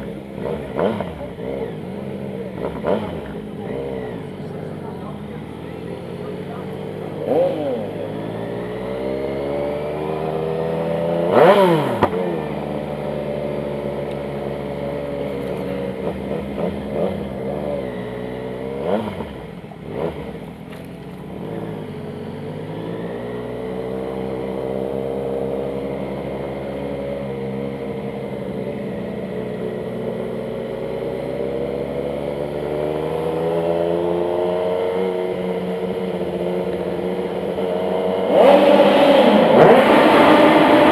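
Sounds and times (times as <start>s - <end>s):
motorcycle engine running: 0.0s - 40.9s
engine rev blips: 32.7s - 40.9s.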